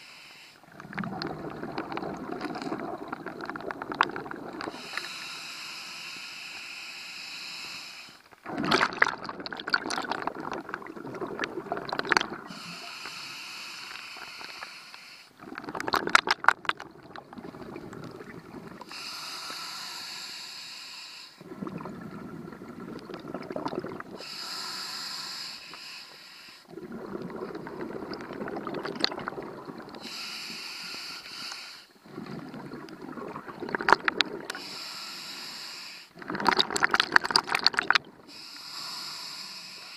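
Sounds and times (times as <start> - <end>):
regulator hissing inhale: 0.0 - 0.7, 4.7 - 8.2, 12.5 - 15.4, 18.8 - 21.4, 24.1 - 26.7, 30.0 - 32.0, 34.5 - 36.2, 38.3 - 39.9
exhaled bubbles rushing: 0.7 - 4.9, 8.4 - 12.6, 15.4 - 18.9, 21.4 - 24.2, 26.7 - 30.1, 32.0 - 34.6, 36.2 - 38.3.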